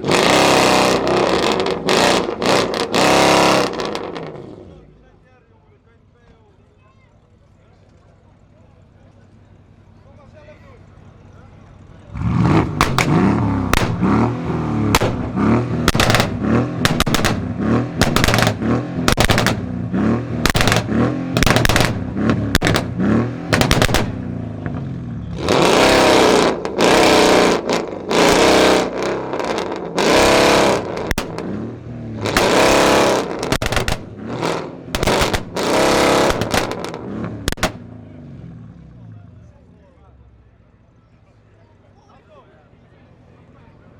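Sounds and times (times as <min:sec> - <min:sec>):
car engine revving: 0:00.0 - 0:04.8, 0:12.0 - 0:39.0
exhaust pops and bangs: 0:12.4 - 0:37.9.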